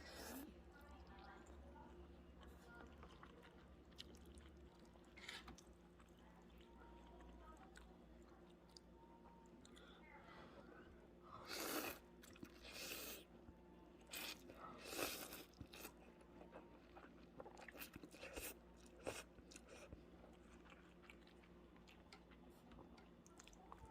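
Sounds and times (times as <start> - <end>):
chewing with wet clicks: 2.4 - 10.0, 11.6 - 12.9, 14.0 - 23.9.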